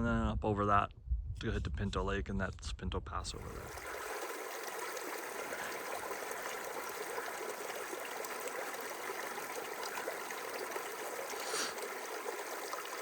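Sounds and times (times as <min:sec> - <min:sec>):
mountain stream rushing: 0:03.3 - 0:13.0.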